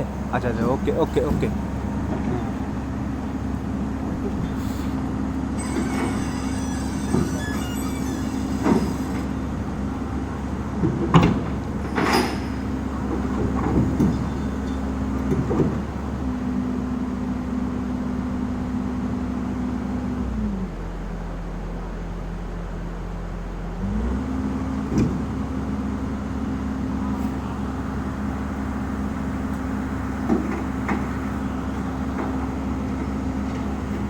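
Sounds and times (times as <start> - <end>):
excavator diesel engine running: 0.0 - 34.0
machine squeal: 5.5 - 10.0, 13.9 - 15.0
loud metal clanks: 11.0 - 15.8.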